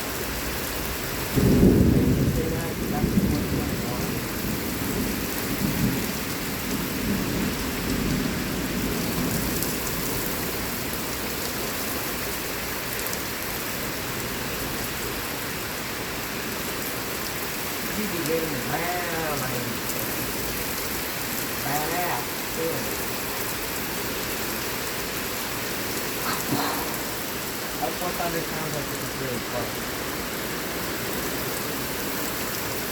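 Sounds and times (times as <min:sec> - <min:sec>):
heavy rain falling: 0:00.0 - 0:32.9
thunderclap rolling: 0:01.3 - 0:06.1.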